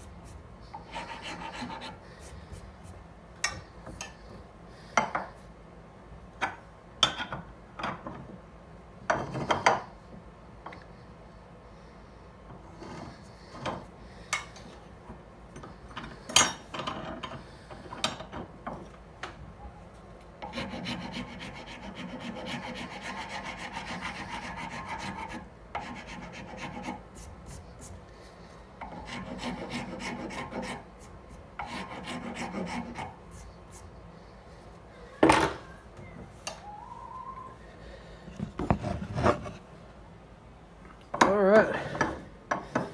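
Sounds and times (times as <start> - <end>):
hand file rasping on wood: 0.0 - 2.9, 20.5 - 27.6, 28.8 - 31.0, 31.6 - 33.2.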